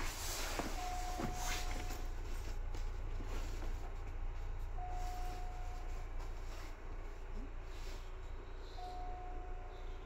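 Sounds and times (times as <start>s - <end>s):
train wheels rumbling: 0.0s - 10.0s
thin steady tone: 8.6s - 10.0s.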